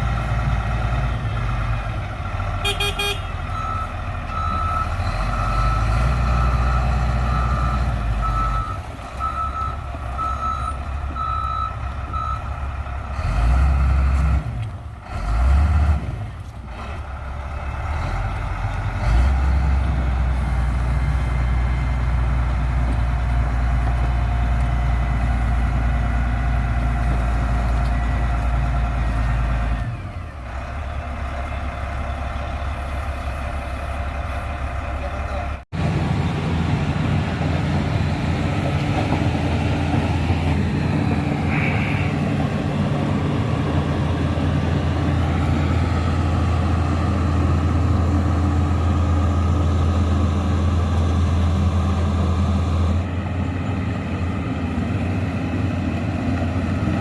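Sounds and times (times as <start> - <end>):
diesel engine working: 0.0 - 57.0
reversing alarm beeping: 3.5 - 12.5.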